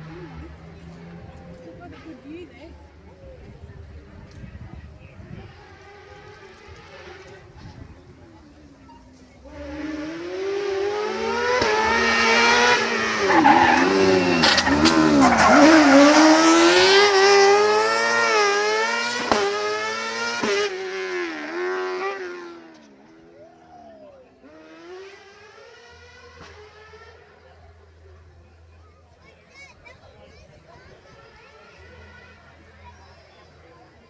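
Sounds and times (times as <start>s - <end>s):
rally car engine passing: 0.0s - 3.4s, 9.4s - 28.0s.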